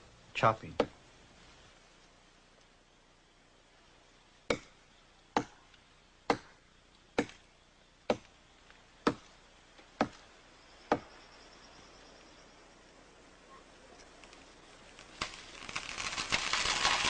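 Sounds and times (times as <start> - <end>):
axe chopping tree trunk: 4.5 - 4.8, 5.4 - 5.6, 6.3 - 6.6, 7.2 - 7.4, 9.0 - 9.3, 10.9 - 11.1.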